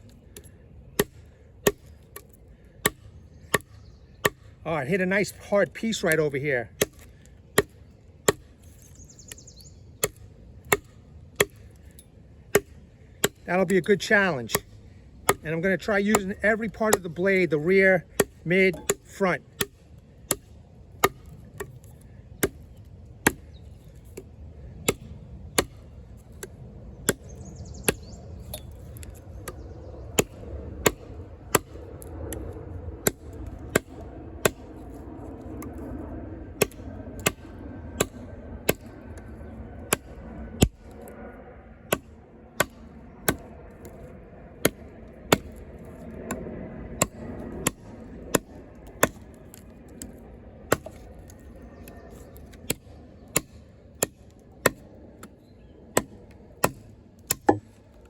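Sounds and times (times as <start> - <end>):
knife chopping into wood: 6.8 - 8.5, 10.0 - 11.6, 14.5 - 15.4, 16.1 - 17.2, 18.2 - 21.8, 22.4 - 23.5, 47.0 - 51.0, 56.0 - 57.8.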